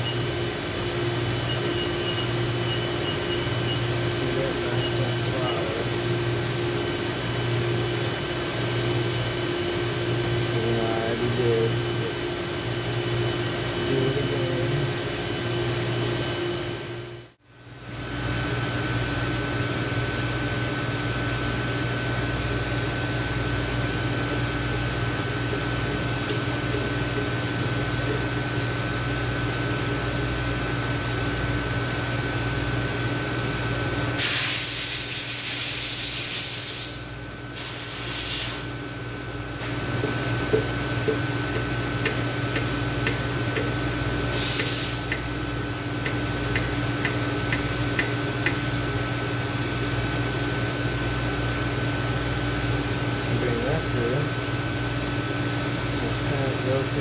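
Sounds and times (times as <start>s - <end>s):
shop hum with whine: 0.0s - 57.0s
aerosol can spraying: 34.2s - 37.0s, 37.6s - 38.7s, 44.3s - 45.2s.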